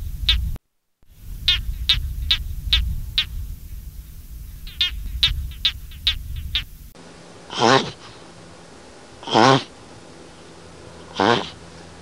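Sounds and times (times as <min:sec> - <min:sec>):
low rumble of wind: 0:00.0 - 0:12.0
short sharp animal calls: 0:01.4 - 0:03.4, 0:04.6 - 0:06.8, 0:11.1 - 0:11.6.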